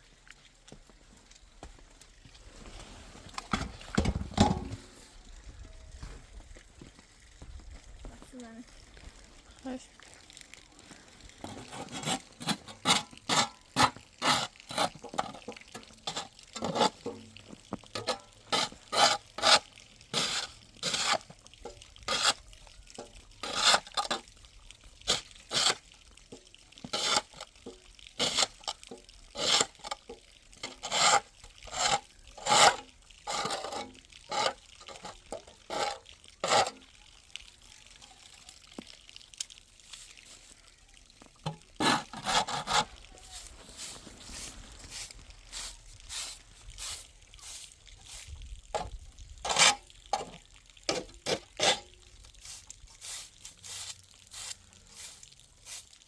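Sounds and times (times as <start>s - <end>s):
snow crunching: 1.6s - 4.0s, 42.6s - 47.7s.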